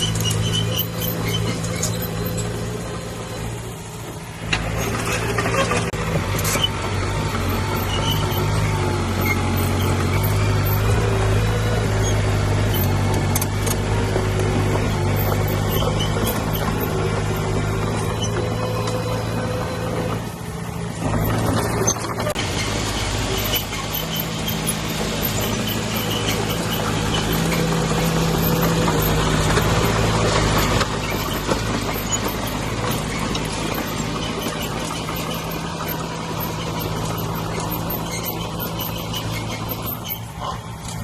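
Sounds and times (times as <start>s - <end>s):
bulldozer diesel engine running: 0.0s - 41.0s
machine squeaks and clanks: 0.0s - 41.0s.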